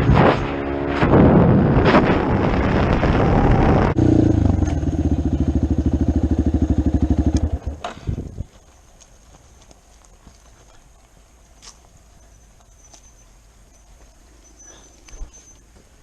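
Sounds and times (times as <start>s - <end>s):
wind noise on microphone: 0.0s - 4.7s, 7.8s - 8.6s
dirt bike engine: 0.0s - 8.8s.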